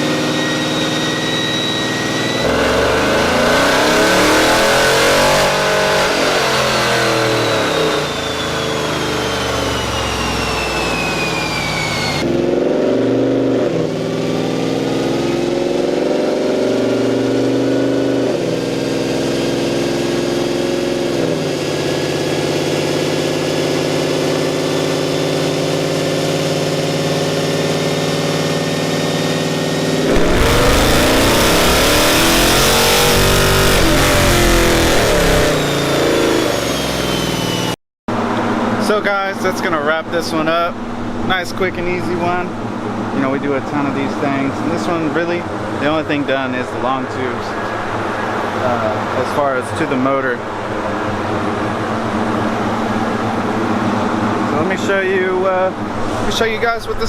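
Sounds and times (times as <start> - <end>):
car engine on dyno: 0.0 - 57.0
drivetrain whine: 0.0 - 57.0.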